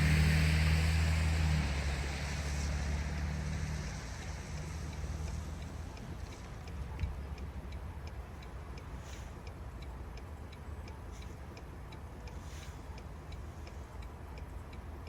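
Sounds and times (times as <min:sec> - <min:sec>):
steady ticking: 0:02.3 - 0:15.0.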